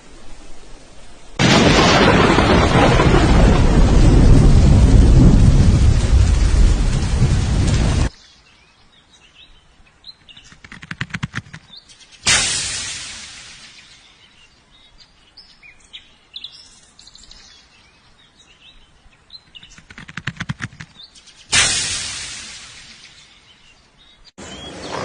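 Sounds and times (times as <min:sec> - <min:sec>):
quick run of clicks: 0:10.4 - 0:12.0, 0:19.6 - 0:21.4
sudden loud burst: 0:12.3 - 0:13.7, 0:21.5 - 0:23.0.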